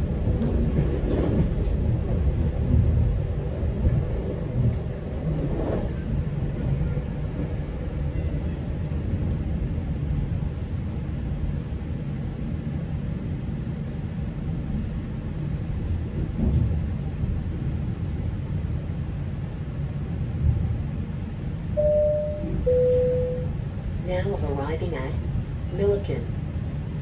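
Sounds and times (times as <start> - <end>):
train rumbling on track: 0.0 - 27.0.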